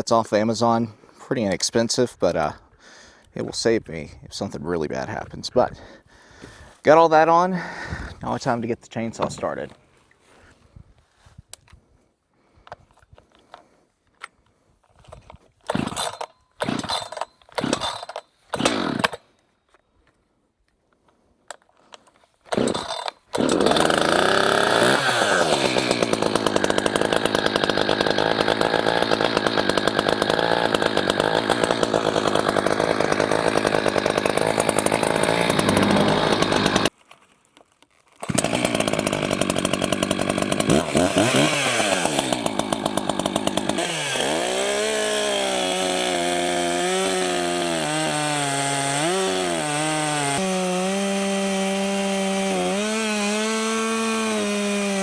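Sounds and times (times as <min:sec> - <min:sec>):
chainsaw pull starts: 0:12.7 - 0:19.4, 0:21.1 - 0:37.0, 0:37.9 - 0:55.0
chainsaw running: 0:15.7 - 0:19.4, 0:22.5 - 0:36.9, 0:38.1 - 0:55.0.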